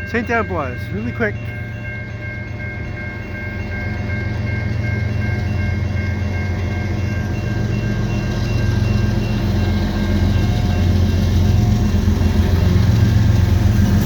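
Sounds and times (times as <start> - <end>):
diesel locomotives throbbing: 0.0 - 14.0
level crossing warning bell: 0.0 - 14.0.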